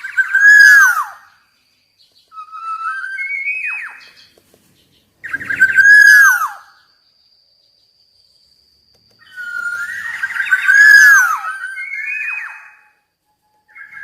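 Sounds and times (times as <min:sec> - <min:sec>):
oriole singing fluty whistles: 0:00.0 - 0:01.4, 0:02.2 - 0:04.2, 0:05.2 - 0:06.9, 0:09.2 - 0:14.0.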